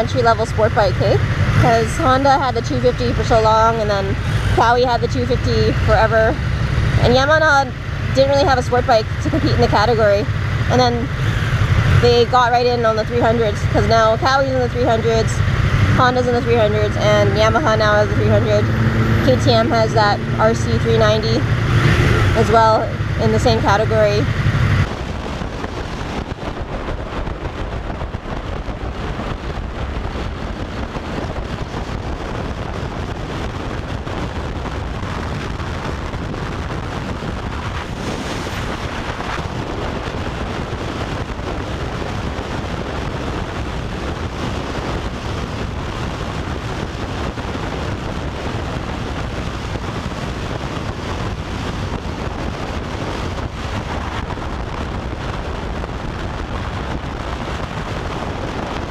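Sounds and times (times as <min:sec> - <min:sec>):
wind rushing over microphone: 0:00.0 - 0:58.9.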